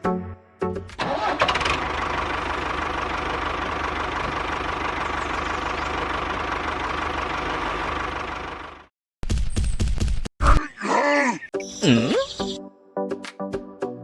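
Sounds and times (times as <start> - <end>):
small engine idling with knocking: 1.5 - 8.9.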